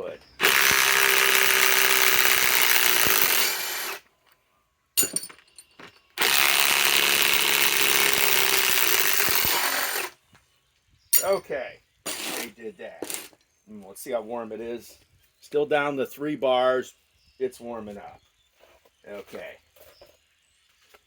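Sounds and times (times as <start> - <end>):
impact wrench hammering: 0.4 - 4.0.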